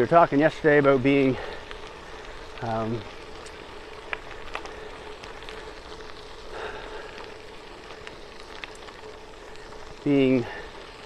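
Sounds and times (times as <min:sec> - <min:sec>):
bicycle tyres rolling on trail: 0:00.0 - 0:11.0
small clicks: 0:03.3 - 0:06.2.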